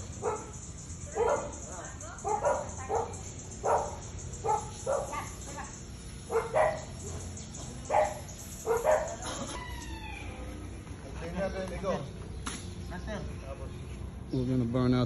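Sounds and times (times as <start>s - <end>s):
dog barking: 0.2s - 5.4s, 6.2s - 7.1s, 7.8s - 9.3s.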